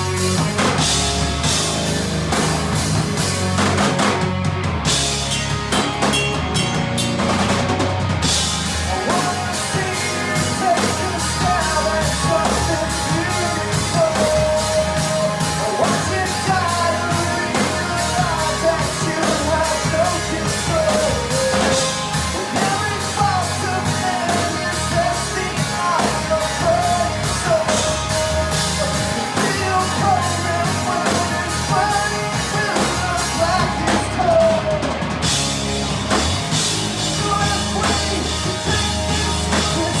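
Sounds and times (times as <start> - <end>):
rock band playing: 0.0 - 40.0
person singing: 8.7 - 35.5, 37.0 - 40.0.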